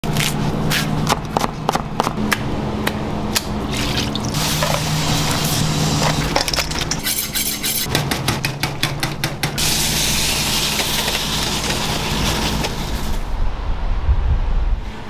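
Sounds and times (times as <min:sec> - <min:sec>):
frying hiss: 0:03.9 - 0:06.4.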